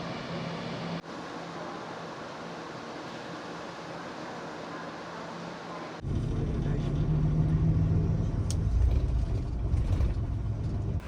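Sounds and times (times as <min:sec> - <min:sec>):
vehicle engine rumble: 0:06.0 - 0:11.0.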